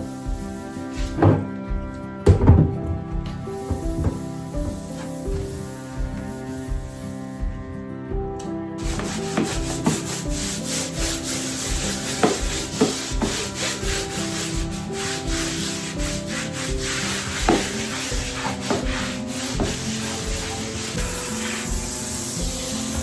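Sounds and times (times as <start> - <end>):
cloth scrubbing a hard surface: 0.0 - 7.6, 8.8 - 23.0
background music with a beat: 0.0 - 23.0.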